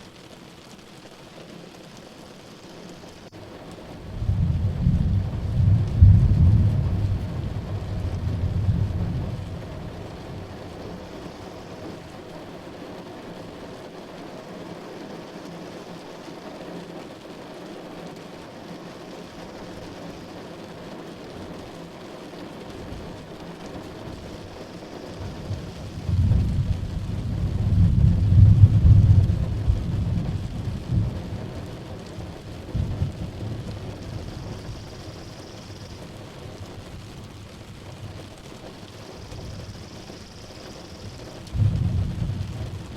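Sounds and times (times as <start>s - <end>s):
heavy rain: 0.0s - 42.9s
rolling thunder: 3.9s - 11.8s, 22.8s - 38.4s, 39.1s - 42.9s.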